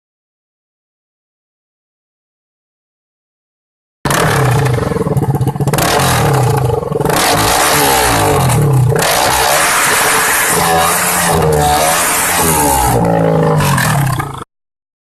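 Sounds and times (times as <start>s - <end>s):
motorcycle engine revving: 4.1s - 14.5s.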